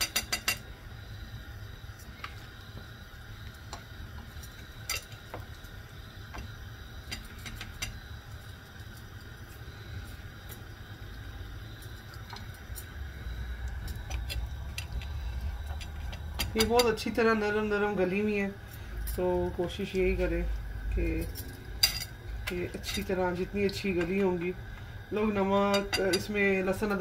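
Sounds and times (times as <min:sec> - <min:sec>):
deep-frying sizzle with pops: 0:00.0 - 0:27.0
low steady hum: 0:00.0 - 0:27.0.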